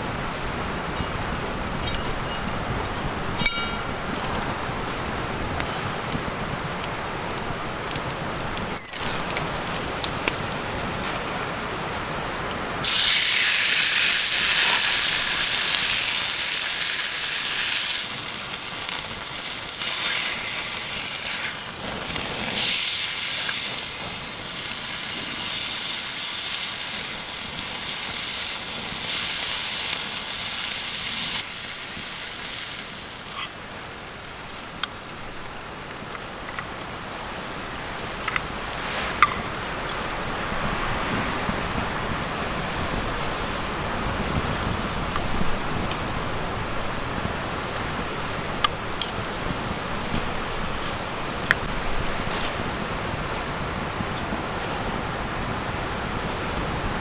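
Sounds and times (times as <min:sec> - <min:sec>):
fire crackling and popping: 0:00.0 - 0:57.0
loud high sizzling hiss: 0:12.8 - 0:34.8.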